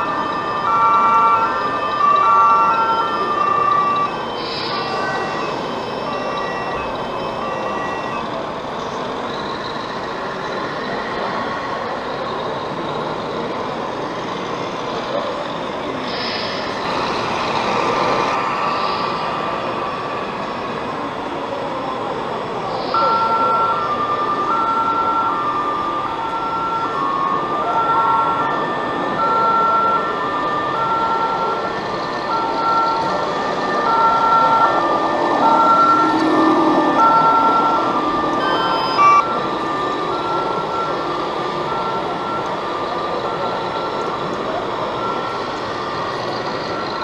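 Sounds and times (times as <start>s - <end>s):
electronic two-tone siren: 0.0s - 8.4s, 22.8s - 47.0s
hall background noise: 0.0s - 47.0s.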